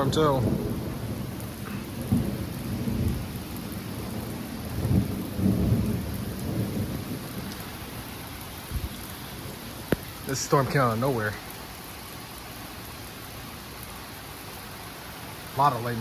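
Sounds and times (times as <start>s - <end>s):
thunder rumbling: 0.0s - 11.5s
steady rain: 0.0s - 16.0s.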